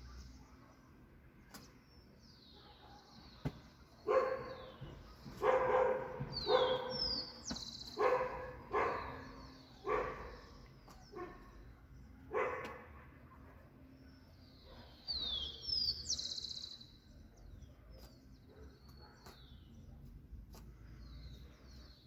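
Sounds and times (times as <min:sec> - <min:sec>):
birds chirping faintly: 0:00.0 - 0:22.0
dog barking: 0:02.5 - 0:03.2, 0:04.0 - 0:07.3, 0:08.0 - 0:10.5, 0:11.1 - 0:11.5, 0:12.3 - 0:13.6, 0:18.0 - 0:19.4.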